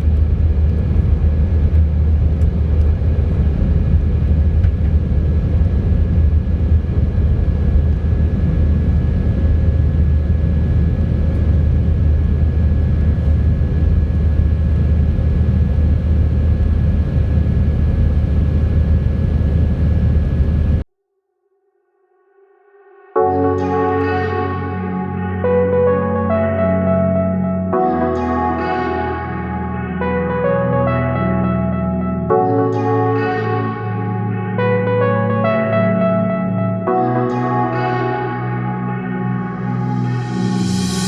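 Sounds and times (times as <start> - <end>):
airplane cabin engine rumble: 0.0 - 20.8, 37.7 - 41.0
steady whine: 0.0 - 20.8, 23.2 - 41.0.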